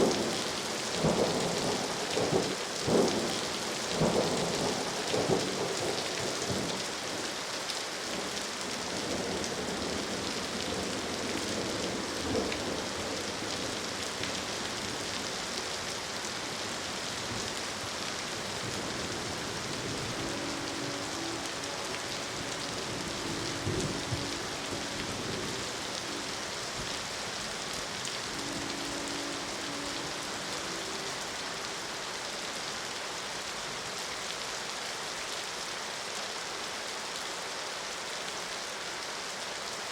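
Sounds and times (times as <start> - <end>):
steady rain: 0.0 - 39.9
thunder rumble: 18.4 - 31.3
distant train horn: 18.9 - 32.6.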